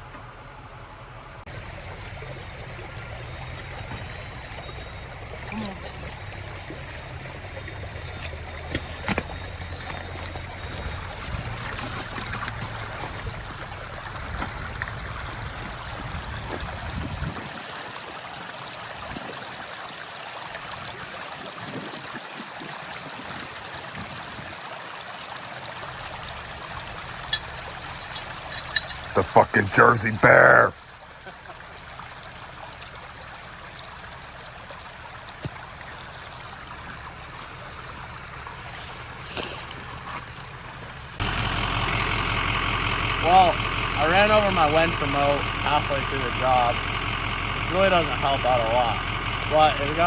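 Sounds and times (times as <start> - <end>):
running water rushing: 1.4 - 50.0
low engine rumble: 25.9 - 50.0.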